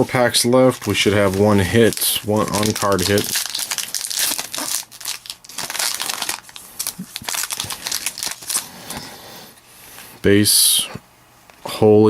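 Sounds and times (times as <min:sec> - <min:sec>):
wrapper crinkling and tearing: 0:00.1 - 0:09.0.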